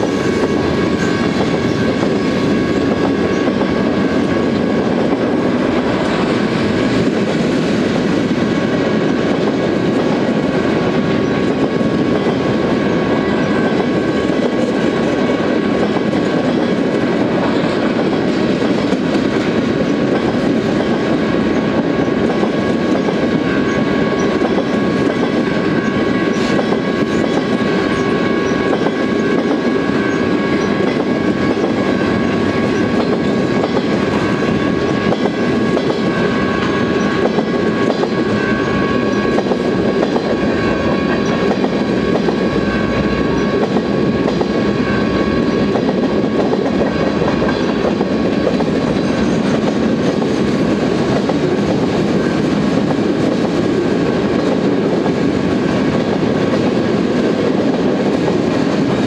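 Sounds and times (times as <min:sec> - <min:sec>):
train wheels clattering over rail joints: 0:00.0 - 0:59.0
high-pitched ringing: 0:22.6 - 0:50.0.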